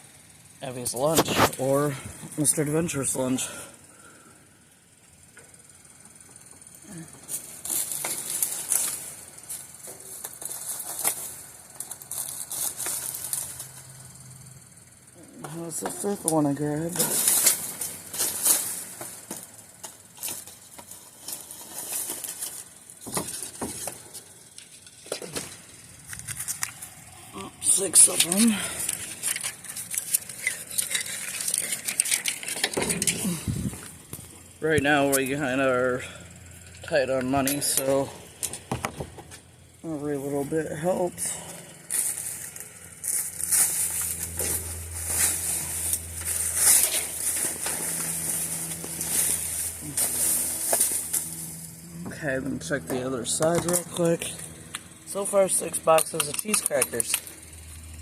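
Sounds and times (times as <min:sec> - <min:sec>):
rummaging through trash: 0:15.6 - 0:24.4, 0:27.3 - 0:34.4, 0:41.1 - 0:52.2.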